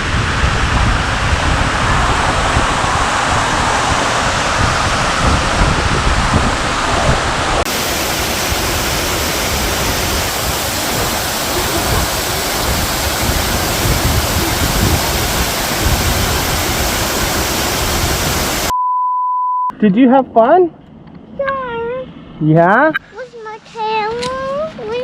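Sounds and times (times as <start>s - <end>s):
waterfall rushing: 0.0s - 18.7s.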